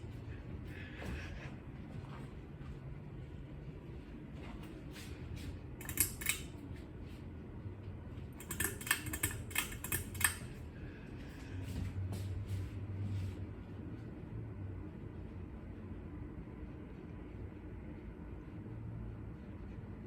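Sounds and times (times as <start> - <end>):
ceiling fan humming: 0.0 - 20.0
clicking and rattling: 5.8 - 6.5, 8.4 - 10.5.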